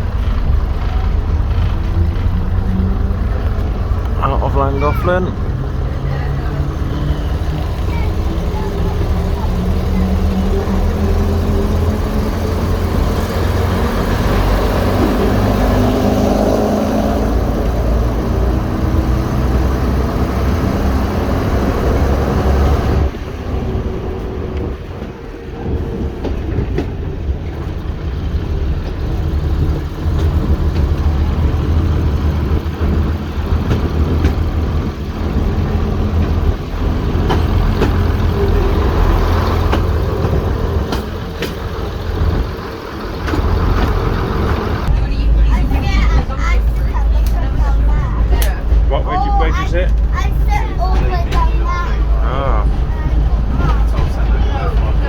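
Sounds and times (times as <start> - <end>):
diesel train engines droning: 0.0 - 55.0
wheels rumbling on rails: 0.0 - 55.0
rail-joint clicks: 23.7 - 45.0, 49.7 - 52.1.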